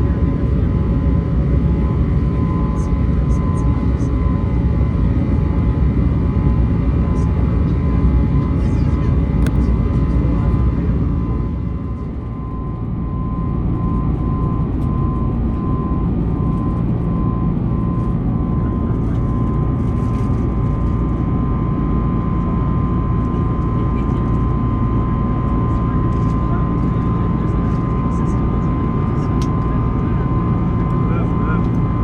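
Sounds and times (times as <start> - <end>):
steady high whine: 0.0 - 23.2
engine and airflow rumble: 0.0 - 32.0.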